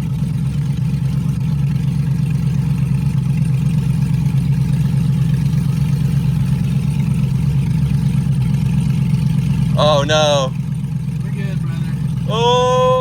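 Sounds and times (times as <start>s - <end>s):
car engine droning at low revs: 0.0s - 13.0s.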